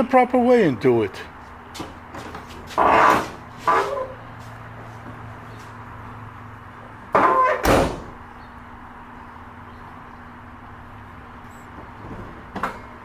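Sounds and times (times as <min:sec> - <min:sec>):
car door slamming: 0:07.2 - 0:08.3.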